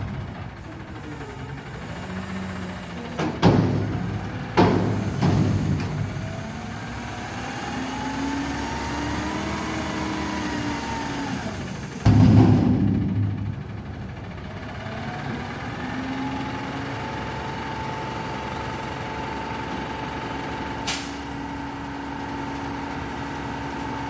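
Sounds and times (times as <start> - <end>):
diesel engine running: 0.0 - 24.0
hydraulics whining: 0.0 - 24.0
loud metal bangs: 3.2 - 7.4, 11.9 - 15.9
loud crash: 12.1 - 15.2.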